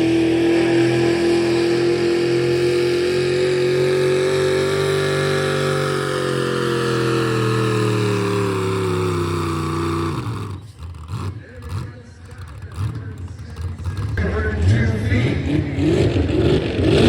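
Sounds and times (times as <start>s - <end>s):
truck engine at high revs: 0.0s - 17.0s.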